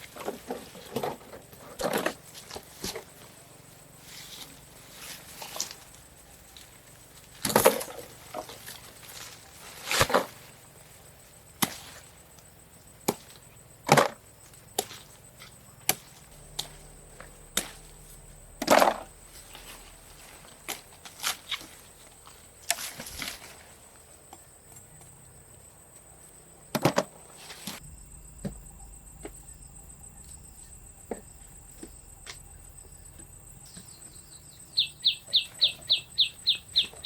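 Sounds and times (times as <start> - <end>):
wood being chopped: 7.4 - 8.5, 11.6 - 11.8, 13.0 - 14.2.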